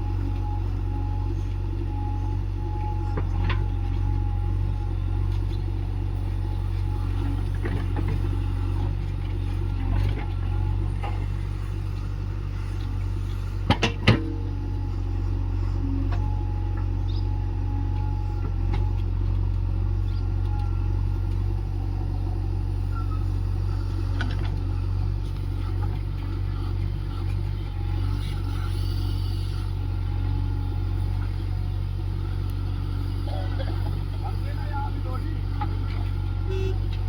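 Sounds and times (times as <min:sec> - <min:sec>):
diesel engine rumbling: 0:00.0 - 0:37.0.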